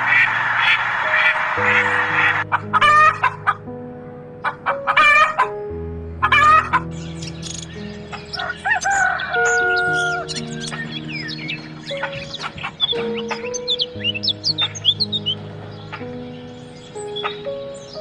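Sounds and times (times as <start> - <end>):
background music with held notes: 0.0 - 18.0
bird chirps: 6.2 - 18.0
rooster crowing and clucking: 8.3 - 10.4.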